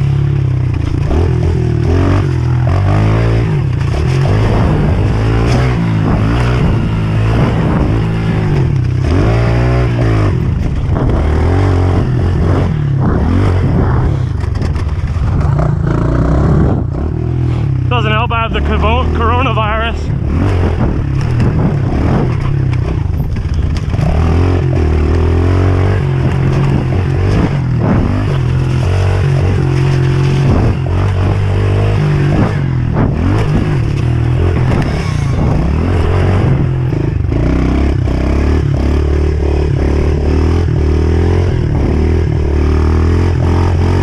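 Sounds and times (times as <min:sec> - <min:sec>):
motorbike engine revving: 0:00.0 - 0:44.0
knocks and rattles: 0:20.5 - 0:25.3.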